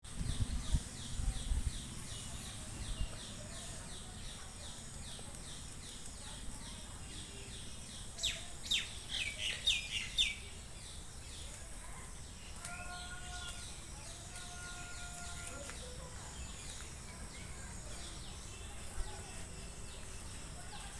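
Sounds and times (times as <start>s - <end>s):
songbirds chirping: 0.0s - 20.9s.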